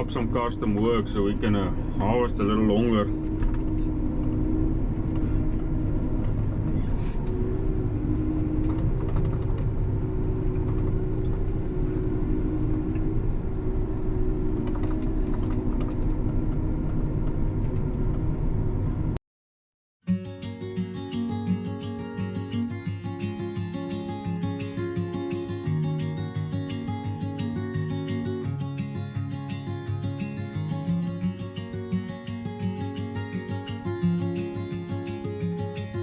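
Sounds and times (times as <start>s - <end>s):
acoustic guitar music: 0.0s - 12.8s, 20.0s - 36.0s.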